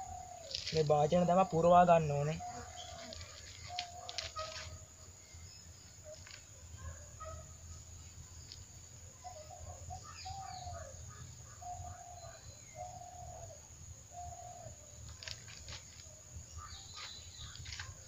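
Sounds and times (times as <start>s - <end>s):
bird calling: 0.0s - 7.6s, 8.4s - 18.0s.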